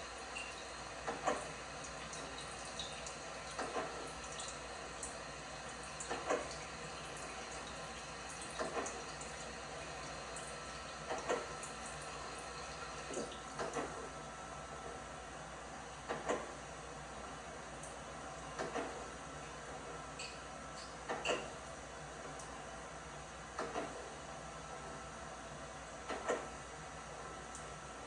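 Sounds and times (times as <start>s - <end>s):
water sloshing in washing machine: 0.0s - 15.0s.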